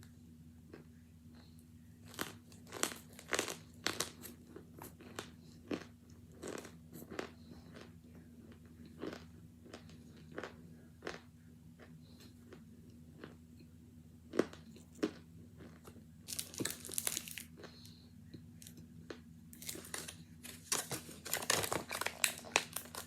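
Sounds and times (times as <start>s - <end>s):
steady low hum: 0.0s - 23.0s
person crunching chalky chunks: 2.0s - 12.6s, 14.3s - 18.0s, 18.6s - 23.0s.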